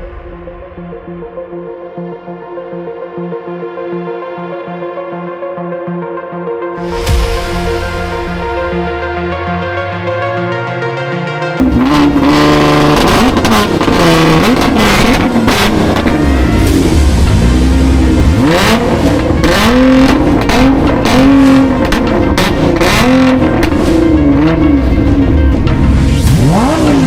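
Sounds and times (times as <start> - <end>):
car engine revving: 7.0 - 27.0.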